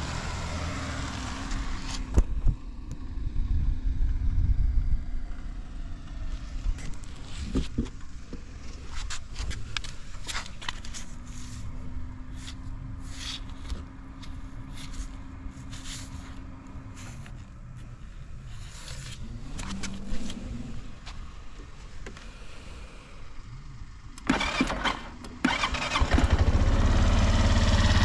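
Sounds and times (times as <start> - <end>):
scooter engine idling: 20.2 - 28.0.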